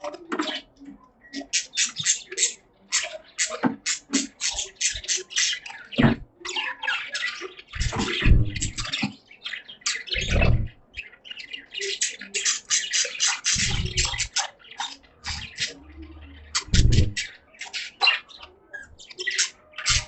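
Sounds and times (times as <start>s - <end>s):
budgies chattering: 0.0s - 20.0s
low-pitched noise: 7.8s - 8.8s, 10.2s - 10.7s, 13.6s - 14.3s, 15.2s - 17.2s.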